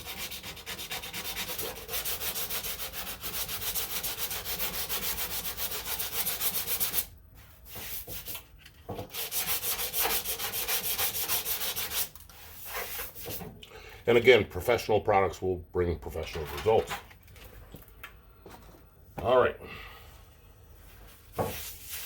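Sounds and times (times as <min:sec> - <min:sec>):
sandpaper rubbing back and forth: 0:00.0 - 0:07.1, 0:09.1 - 0:13.4, 0:21.4 - 0:22.0.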